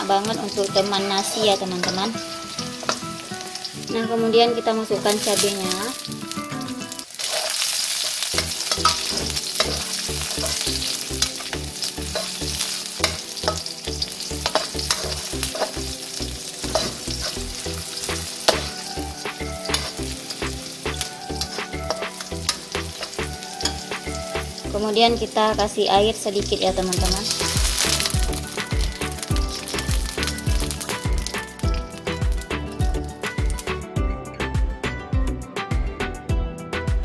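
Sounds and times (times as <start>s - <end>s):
food sizzling in hot oil: 0.0s - 33.9s
metal spatula scraping wok: 0.1s - 6.4s, 7.1s - 25.4s, 27.0s - 32.7s.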